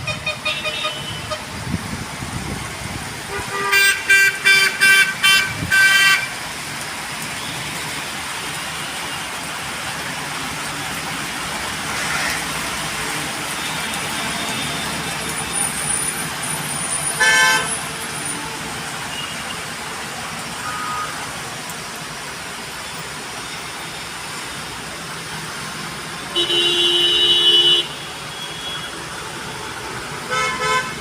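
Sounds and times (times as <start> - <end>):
vehicle horns tooting: 0.0 - 1.5, 3.3 - 6.3, 17.2 - 17.8, 20.6 - 21.3, 26.3 - 29.0, 30.3 - 31.0
road traffic: 0.0 - 31.0.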